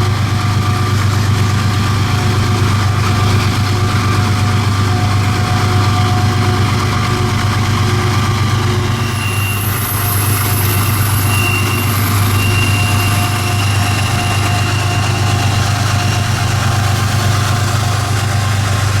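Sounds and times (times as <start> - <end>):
low drone of vehicle engines: 0.0 - 19.0
thin high whine: 8.8 - 18.9
faint whining tones: 8.9 - 18.6.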